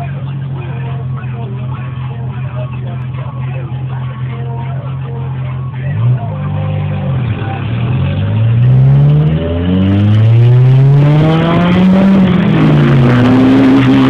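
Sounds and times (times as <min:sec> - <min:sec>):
car engine revving hard: 0:05.9 - 0:14.0.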